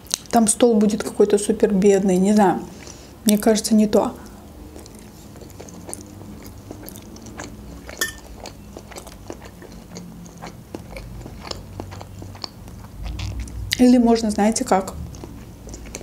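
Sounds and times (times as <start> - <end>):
person chewing with wet clicks: 0.0 - 1.0, 2.8 - 3.5, 4.2 - 13.9, 14.7 - 16.0.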